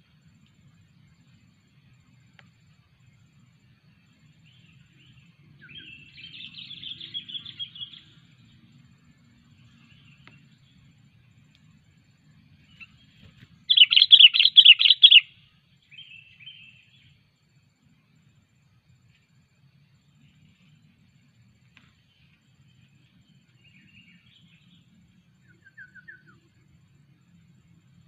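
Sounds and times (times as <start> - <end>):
bulbul calling: 5.1 - 8.2, 13.6 - 16.9.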